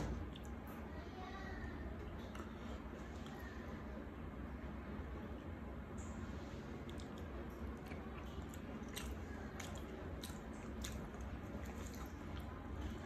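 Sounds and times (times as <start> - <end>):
steady low hum: 0.0 - 13.0
person chewing: 6.7 - 13.0.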